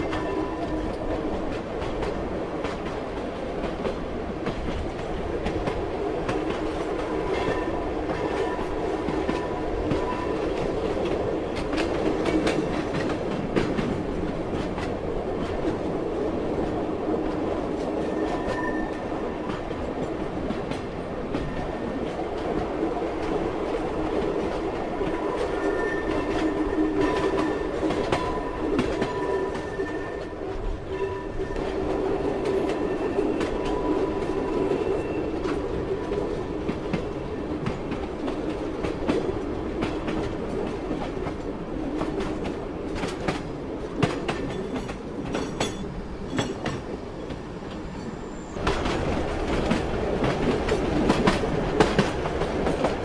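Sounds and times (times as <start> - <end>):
train wheels clickety-clack: 0.0 - 53.0
faint high wheel squeal: 18.1 - 19.1, 25.5 - 26.5, 28.2 - 30.3.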